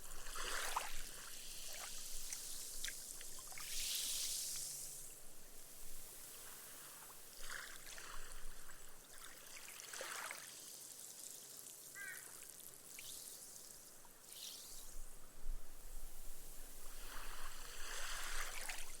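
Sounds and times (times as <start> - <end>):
ripples lapping on sandy shore: 0.0 - 10.6, 16.1 - 19.0
fizzing hiss of foam: 0.4 - 5.2.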